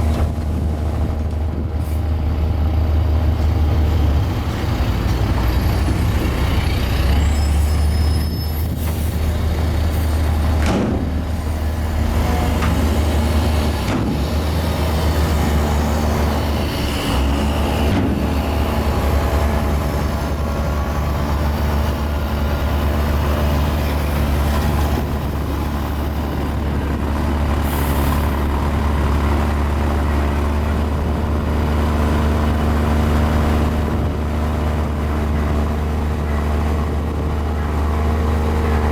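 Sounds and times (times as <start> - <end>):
bulldozer diesel engine running: 0.0 - 38.9
metallic clanks and squeaks: 7.0 - 9.2.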